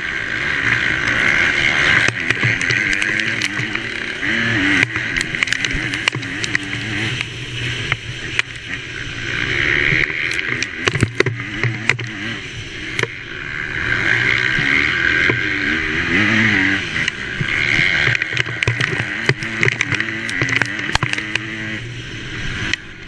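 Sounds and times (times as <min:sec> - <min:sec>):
motocross bike engine racing: 0:00.0 - 0:23.0
sharp knocks and clicks: 0:01.9 - 0:04.0, 0:04.7 - 0:07.3, 0:09.9 - 0:12.2, 0:17.0 - 0:21.6.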